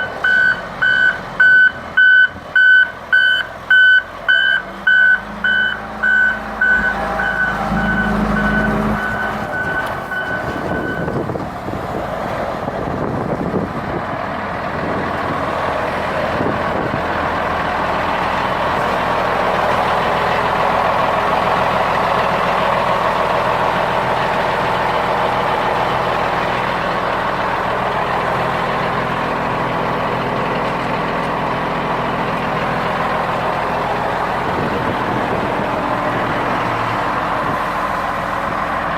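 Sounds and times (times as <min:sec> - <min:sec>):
reversing alarm beeping: 0:00.0 - 0:11.2
diesel engine running: 0:00.0 - 0:38.9.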